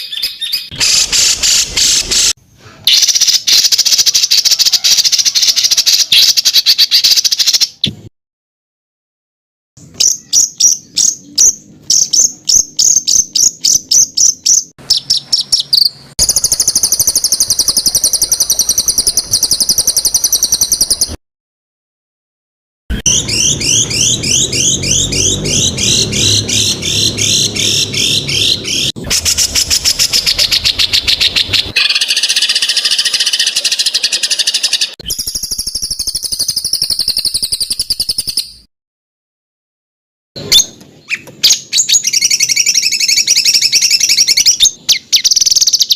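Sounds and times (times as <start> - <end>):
songbird harsh trills: 10.0 - 21.2, 22.9 - 38.6.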